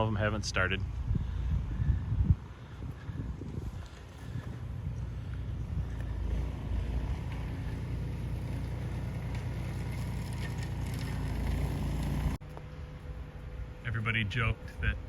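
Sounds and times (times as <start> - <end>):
snowblower engine running: 4.2 - 12.4.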